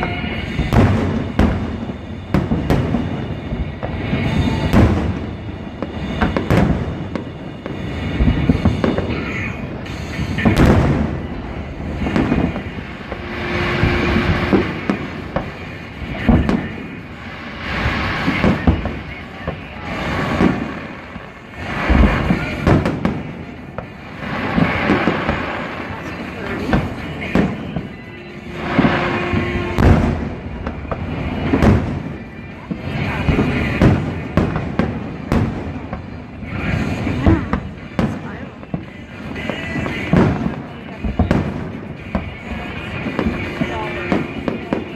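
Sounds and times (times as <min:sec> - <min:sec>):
continuous rumbling background: 0:00.0 - 0:44.9
fireworks bangs and booms: 0:00.0 - 0:44.9.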